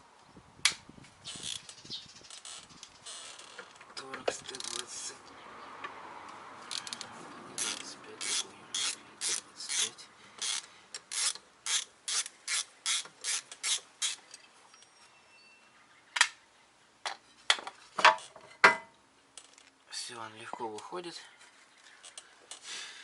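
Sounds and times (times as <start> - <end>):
ratchet wrench clicking: 6.7 - 14.2.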